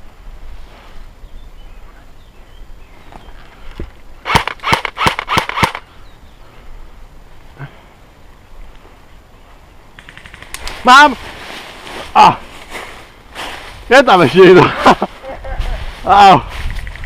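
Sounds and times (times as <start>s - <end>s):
airsoft gun shots: 4.2s - 5.8s.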